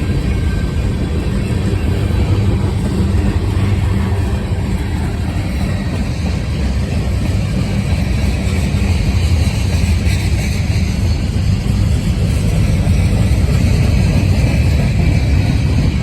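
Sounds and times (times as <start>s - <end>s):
freight train wheels rumbling on rail: 0.0s - 16.0s.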